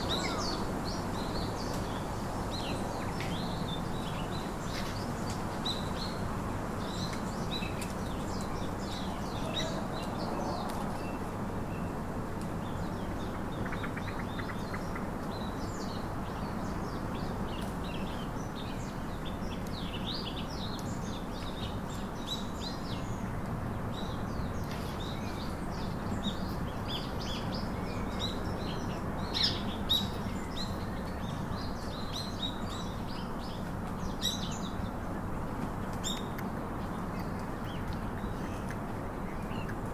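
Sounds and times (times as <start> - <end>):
low background noise: 0.0 - 39.9.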